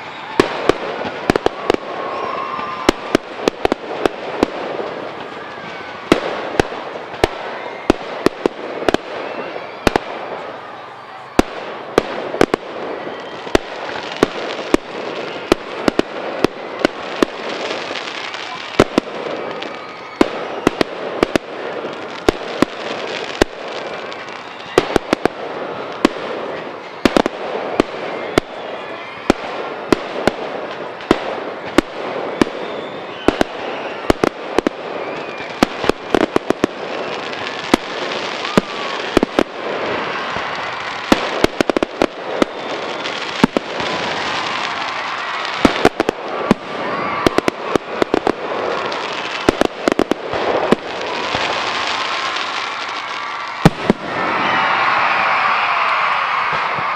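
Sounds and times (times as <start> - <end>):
fireworks bangs: 0.0 - 56.9.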